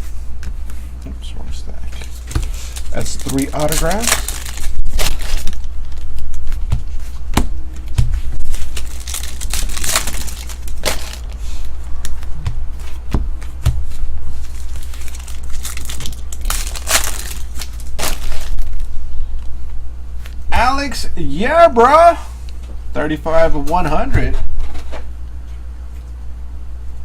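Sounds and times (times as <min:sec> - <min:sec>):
steady low hum: 0:00.0 - 0:27.0
wrappers crinkling and tearing: 0:01.9 - 0:07.2, 0:08.4 - 0:12.3, 0:14.3 - 0:18.9
cards being shuffled: 0:01.9 - 0:18.8.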